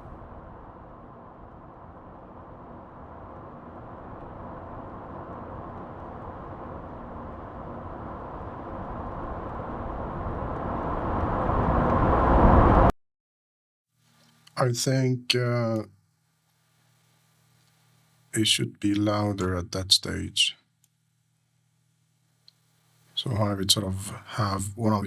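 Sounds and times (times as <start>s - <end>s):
vehicle road and engine noise: 0.0s - 12.9s.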